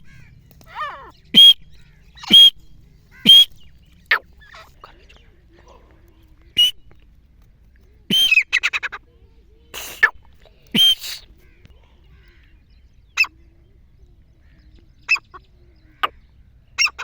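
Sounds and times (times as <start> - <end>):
francolin calling shrill notes: 1.4 - 1.6, 2.2 - 2.6, 3.3 - 3.6.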